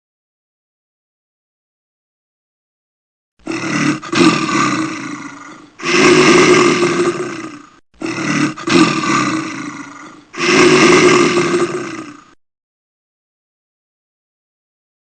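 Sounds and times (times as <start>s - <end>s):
large animal roaring: 3.4s - 12.4s.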